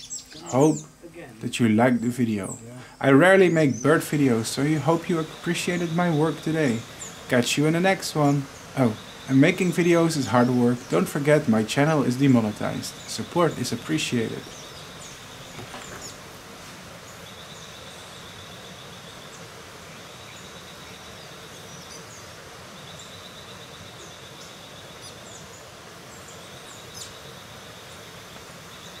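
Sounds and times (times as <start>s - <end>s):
steady background hiss: 0.0s - 29.0s
insect pulsing buzz: 2.5s - 29.0s.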